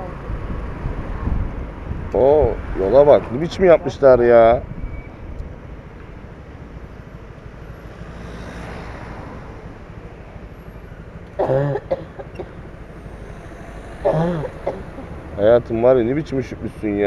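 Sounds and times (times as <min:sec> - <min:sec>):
motorcycle engine and wind rumble: 0:00.0 - 0:17.0
person coughing: 0:11.4 - 0:15.4.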